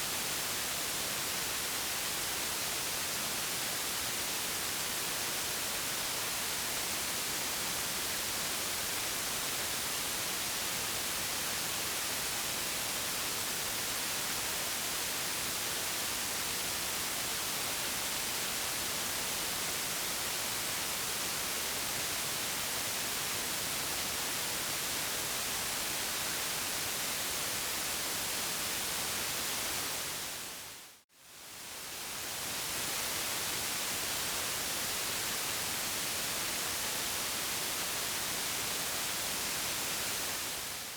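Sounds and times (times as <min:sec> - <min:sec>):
steady white noise hiss: 0:00.0 - 0:40.9.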